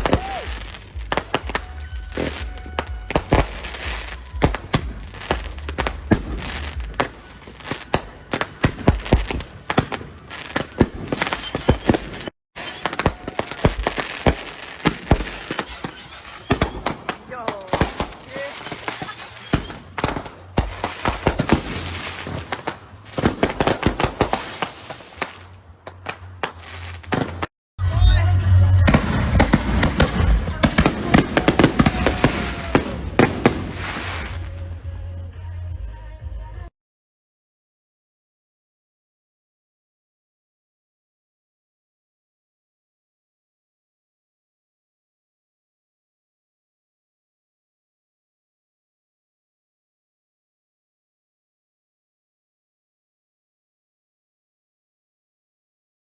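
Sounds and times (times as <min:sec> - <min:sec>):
fireworks banging: 0:00.0 - 0:27.5, 0:28.5 - 0:34.8
fireworks crackling: 0:00.0 - 0:27.5, 0:28.4 - 0:34.9.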